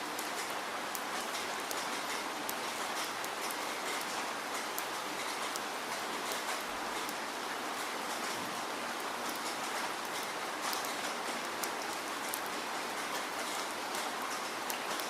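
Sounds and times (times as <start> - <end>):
raindrops ticking on a surface: 0.0 - 15.0.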